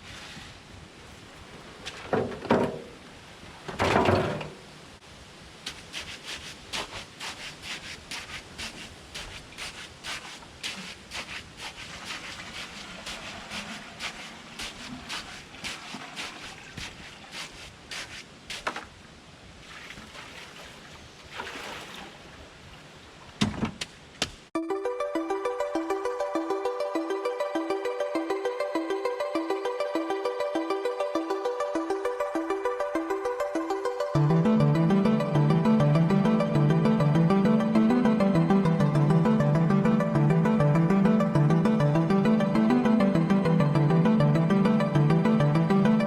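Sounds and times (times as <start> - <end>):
short scraping strokes: 5.8 - 18.6.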